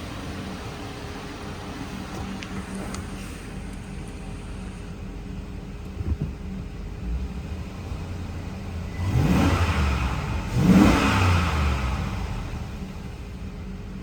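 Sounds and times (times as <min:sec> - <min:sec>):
truck engine idling and revving: 0:00.0 - 0:14.0.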